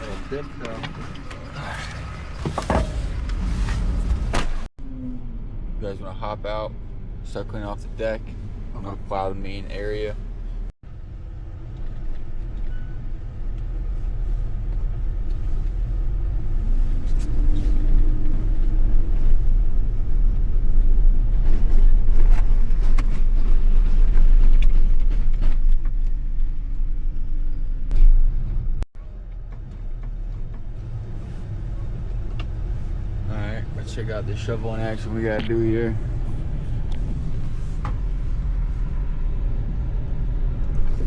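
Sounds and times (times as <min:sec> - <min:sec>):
truck engine rumbling under load: 0:00.0 - 0:05.6.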